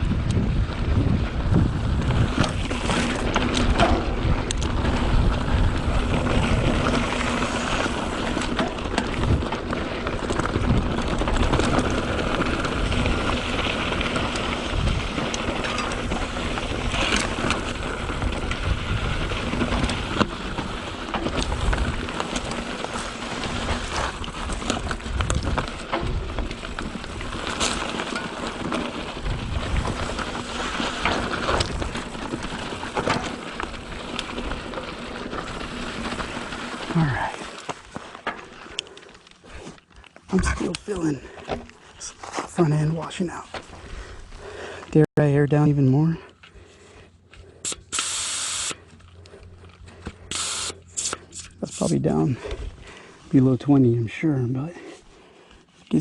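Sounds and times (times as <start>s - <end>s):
wind buffeting microphone: 0.0s - 7.4s, 29.1s - 30.4s
bike rattling over bumps: 0.0s - 48.0s
tyres grinding over ground: 0.4s - 43.8s.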